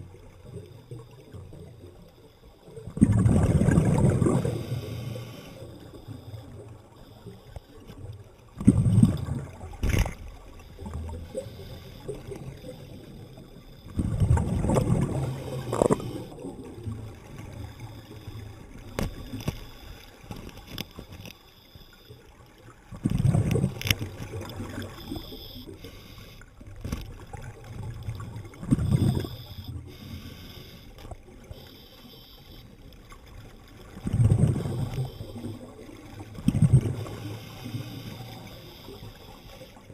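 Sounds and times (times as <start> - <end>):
sharp clicks underwater: 0.0 - 39.9
diver exhaling bubbles: 2.9 - 5.1, 8.6 - 9.8, 14.0 - 17.0, 28.1 - 30.3, 34.0 - 38.4.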